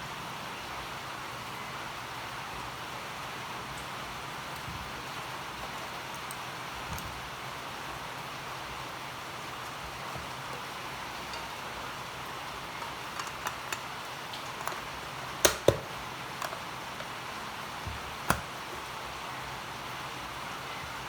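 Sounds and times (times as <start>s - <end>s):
small clicks and knocks: 12.6s - 18.9s.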